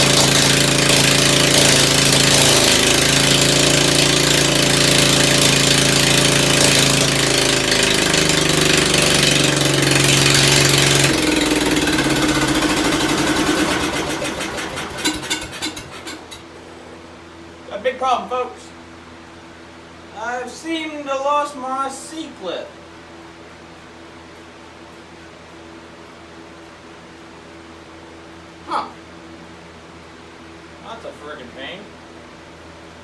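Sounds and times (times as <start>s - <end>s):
car engine running and dying: 0.0s - 16.4s.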